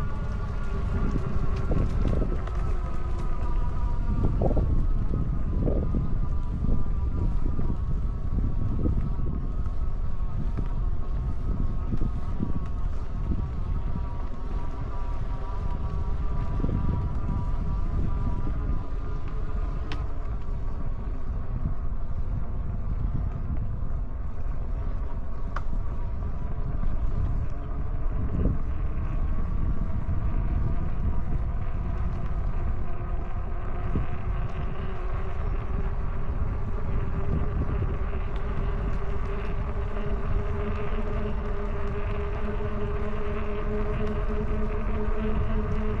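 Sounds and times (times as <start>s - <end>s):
electric bike motor whining: 0.0s - 46.0s
wind buffeting microphone: 0.0s - 46.0s.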